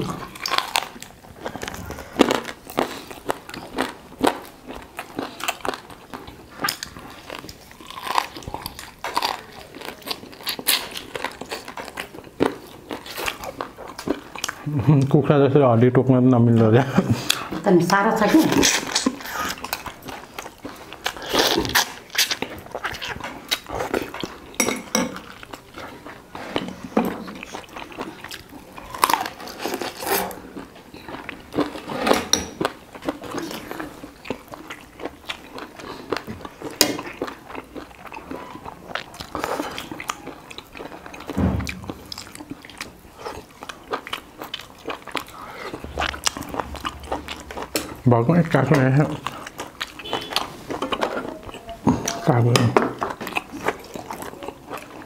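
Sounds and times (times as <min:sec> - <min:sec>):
chewing and crunching bone: 0:00.0 - 0:15.2, 0:16.9 - 0:55.0
utensils clinking against bowl: 0:24.6 - 0:25.3.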